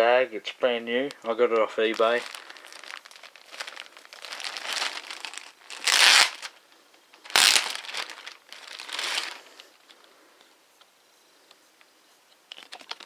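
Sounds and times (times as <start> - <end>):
packaging bag crinkling: 1.0 - 6.6, 7.2 - 9.7.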